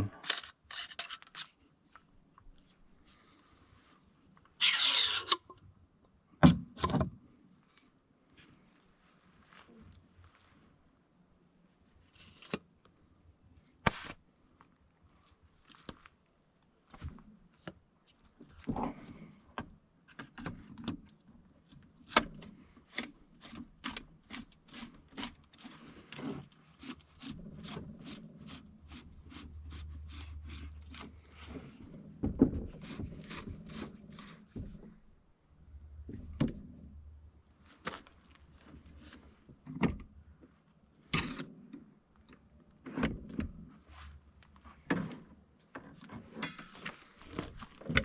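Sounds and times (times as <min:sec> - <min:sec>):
metal parts clicking and scraping: 0:00.2 - 0:01.6, 0:04.6 - 0:05.5.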